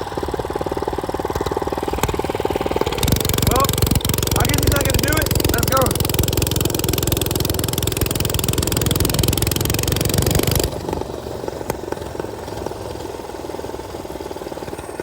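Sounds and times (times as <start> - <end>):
minibike engine running: 0.0 - 15.0.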